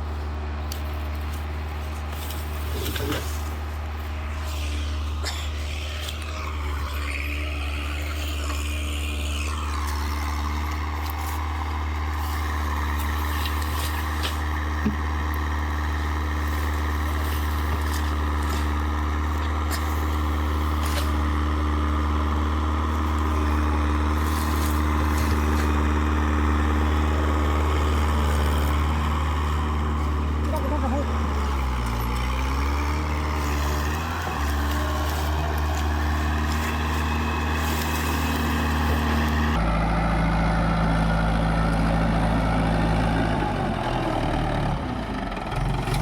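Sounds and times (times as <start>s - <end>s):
tractor engine running: 0.0s - 46.0s.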